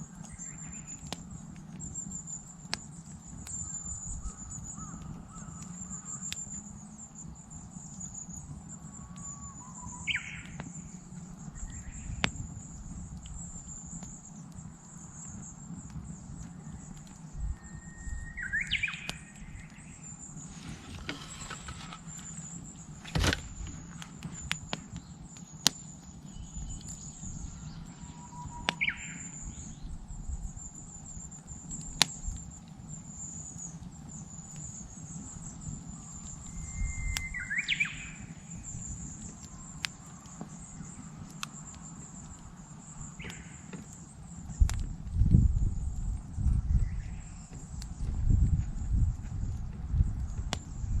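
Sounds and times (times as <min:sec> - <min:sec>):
campfire crackling and popping: 0:00.0 - 0:51.0
bird singing whistled song: 0:00.3 - 0:01.0, 0:09.2 - 0:12.5, 0:16.6 - 0:20.1, 0:26.2 - 0:29.9, 0:36.0 - 0:39.7.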